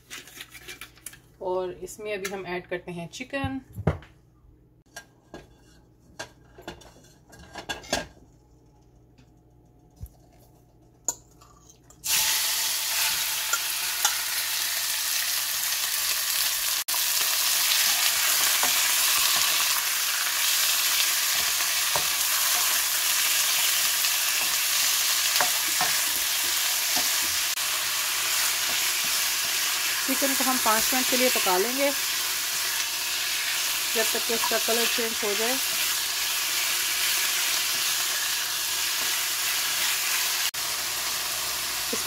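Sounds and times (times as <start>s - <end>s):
chicken frying in hot oil: 12.0s - 42.0s.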